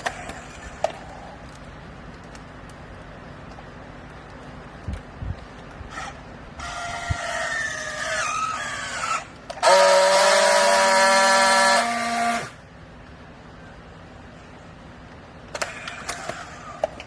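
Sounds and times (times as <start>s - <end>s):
hydraulic machinery whine: 5.9s - 12.8s
loud horn-like tone: 9.6s - 12.6s.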